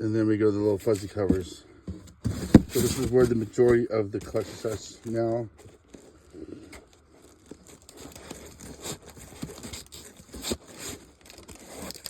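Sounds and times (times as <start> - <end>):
plastic bags crinkling: 5.6 - 12.0.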